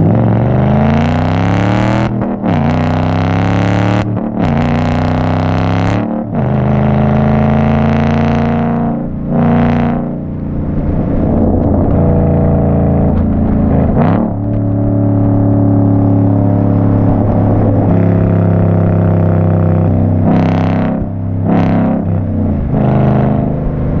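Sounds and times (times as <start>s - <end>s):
car engine running: 0.0s - 24.0s
engine surges: 0.0s - 24.0s.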